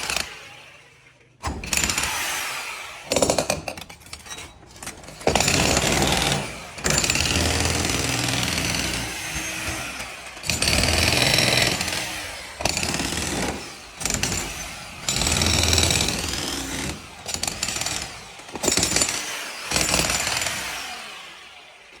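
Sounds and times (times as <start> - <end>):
power tool running loudly: 5.3 - 22.0.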